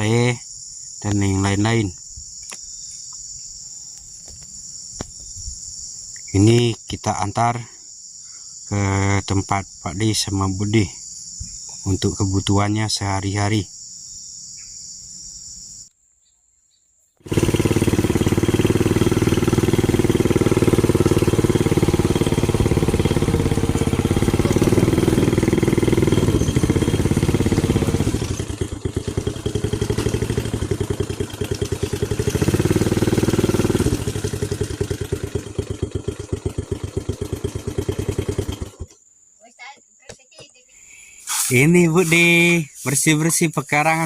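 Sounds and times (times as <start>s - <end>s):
motorcycle engine running: 17.2s - 39.0s.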